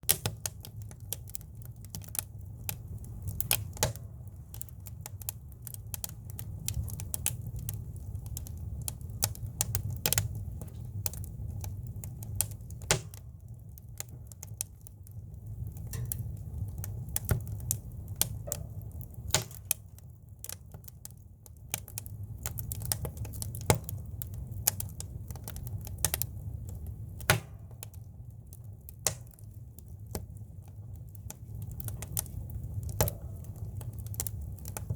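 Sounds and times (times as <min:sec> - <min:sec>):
campfire crackling and popping: 0:00.0 - 0:34.9
low steady rumble of fire: 0:00.0 - 0:34.9.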